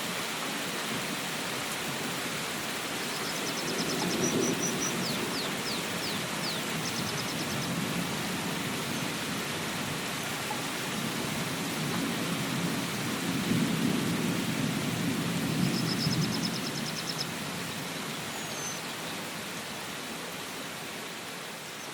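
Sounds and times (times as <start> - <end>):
steady rain falling: 0.0 - 21.9
low rumble of thunder: 3.6 - 5.6, 11.1 - 16.6.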